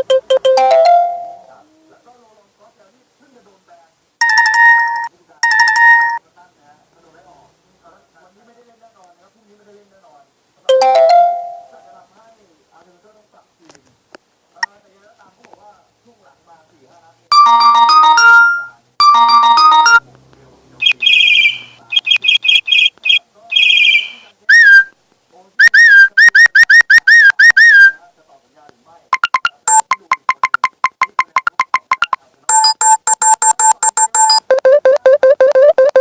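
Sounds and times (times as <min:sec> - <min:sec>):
rapid electronic beeps: 0:00.0 - 0:00.4, 0:20.8 - 0:24.2, 0:29.2 - 0:36.0
chirping electronic trills: 0:20.8 - 0:24.2.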